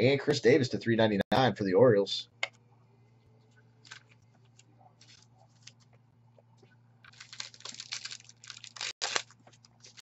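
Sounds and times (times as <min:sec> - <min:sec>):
trading cards and packaging rustling: 0:03.8 - 0:05.9, 0:07.1 - 0:10.0.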